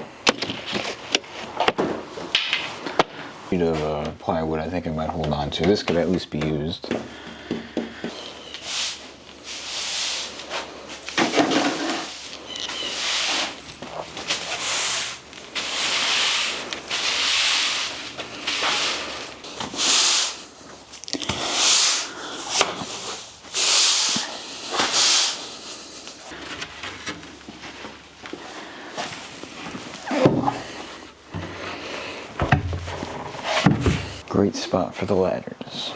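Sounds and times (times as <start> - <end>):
boards rubbing and scraping: 7.8 - 27.3, 29.0 - 34.2
sharp knocks: 32.4 - 34.2.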